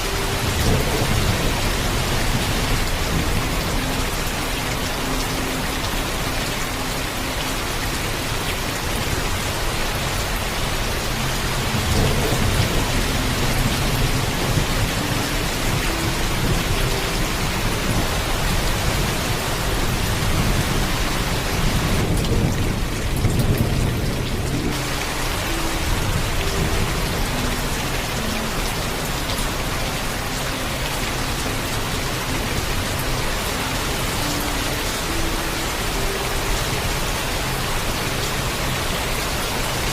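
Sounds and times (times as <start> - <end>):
heavy rain: 0.0 - 39.9
thunder rumbling: 0.3 - 4.2, 11.7 - 27.7.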